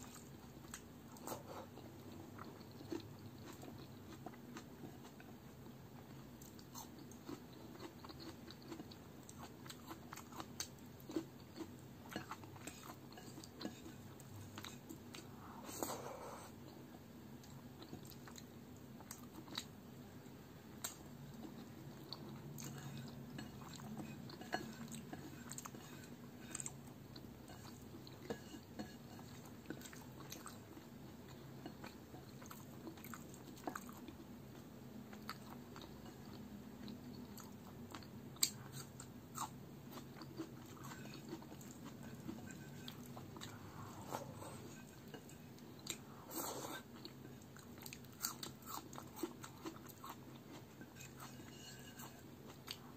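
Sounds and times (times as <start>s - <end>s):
chewing mouthful of food: 0.0s - 19.7s, 20.8s - 52.9s
fingers mixing rice on plate: 6.5s - 16.0s, 20.8s - 30.9s, 39.9s - 46.0s.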